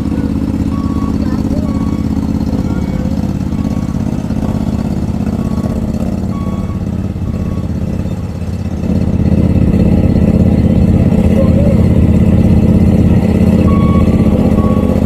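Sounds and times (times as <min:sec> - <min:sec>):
boat trailer engine running: 0:00.0 - 0:15.0
faint warning alarm beeps: 0:00.3 - 0:08.2, 0:13.6 - 0:15.0.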